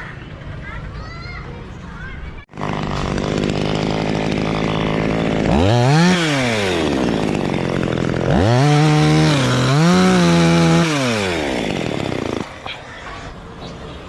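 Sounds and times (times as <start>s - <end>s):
chainsaw engine revving: 2.5s - 12.6s.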